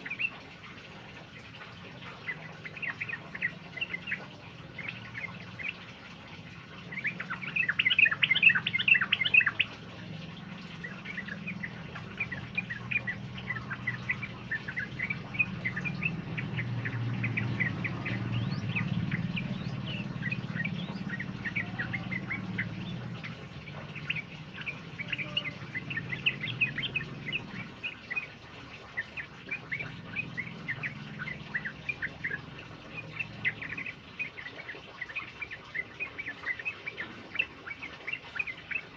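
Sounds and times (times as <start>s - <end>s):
flock of birds chirping: 0.0s - 38.9s
low steady rumble: 1.4s - 28.5s.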